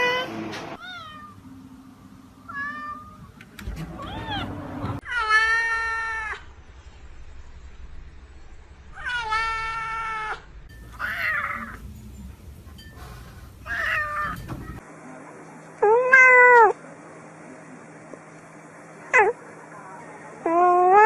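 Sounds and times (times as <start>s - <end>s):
cat meowing: 11.0s - 11.8s.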